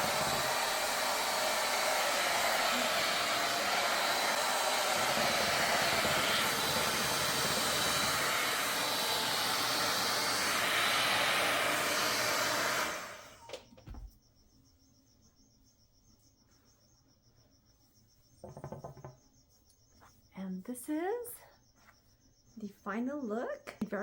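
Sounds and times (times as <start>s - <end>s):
hot-air styling brush blowing: 0.0s - 13.6s.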